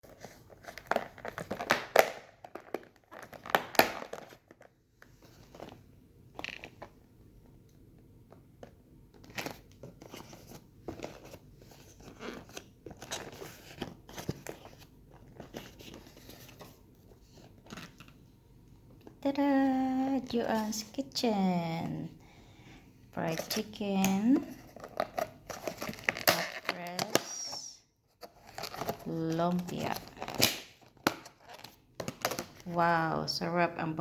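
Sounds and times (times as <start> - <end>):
plastic packaging crinkling: 23.3 - 27.6, 28.2 - 32.8.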